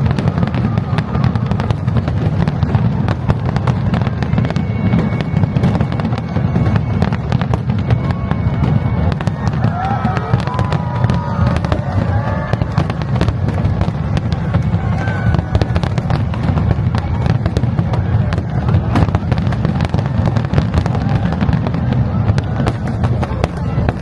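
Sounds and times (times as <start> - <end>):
low rumble of bursting fireworks: 0.0 - 24.0
rapid fireworks crackling: 0.0 - 24.0.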